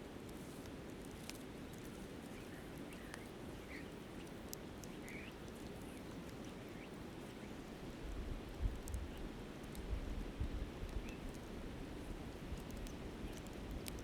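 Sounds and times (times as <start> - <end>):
campfire crackling: 7.6 - 14.0.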